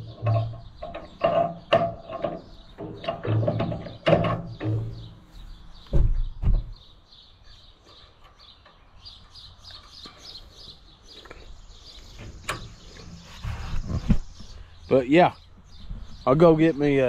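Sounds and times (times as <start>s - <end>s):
birds chirping: 0.0s - 17.0s
heavy thumps: 1.2s - 6.9s.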